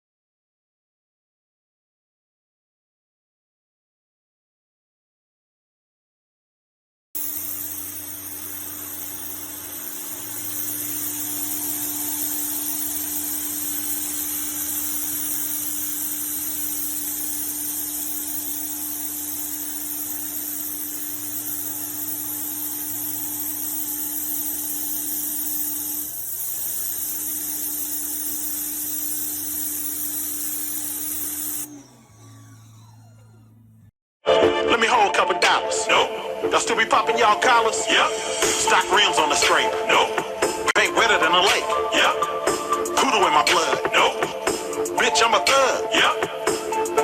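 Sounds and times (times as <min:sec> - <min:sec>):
pressure washer water jet hissing: 0:07.2 - 0:33.9
machine hum: 0:07.2 - 0:34.0.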